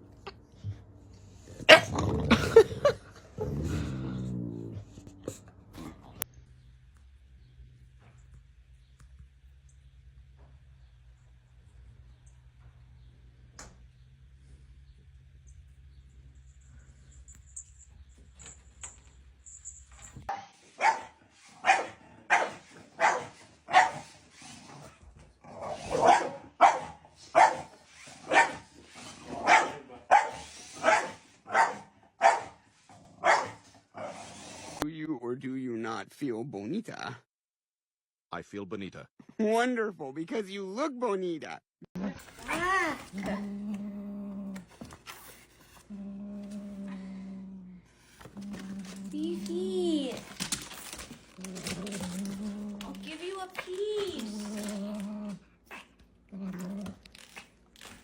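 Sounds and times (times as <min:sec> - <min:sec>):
dog barking: 0:01.7 - 0:01.9, 0:20.3 - 0:24.1, 0:25.8 - 0:32.6, 0:33.2 - 0:34.2.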